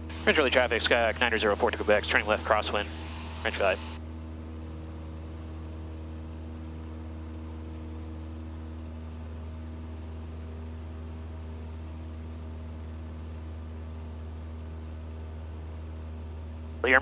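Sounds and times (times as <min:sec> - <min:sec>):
propeller plane engine droning: 0:00.0 - 0:17.0
intercom hiss: 0:01.5 - 0:04.0.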